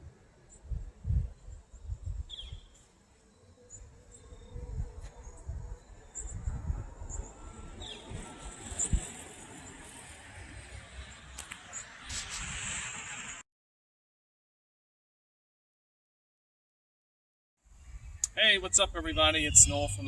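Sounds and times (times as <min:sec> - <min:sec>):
wind buffeting microphone: 0:00.0 - 0:02.7, 0:03.8 - 0:09.9, 0:17.7 - 0:20.0.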